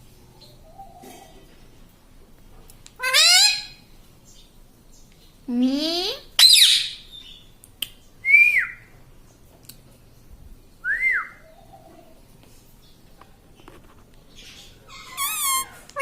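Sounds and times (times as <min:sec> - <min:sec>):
parrot squawking and screeching: 0:03.0 - 0:03.8, 0:06.4 - 0:07.0, 0:14.9 - 0:16.0
parrot whistled calls: 0:03.0 - 0:03.8, 0:06.4 - 0:07.3, 0:14.9 - 0:16.0.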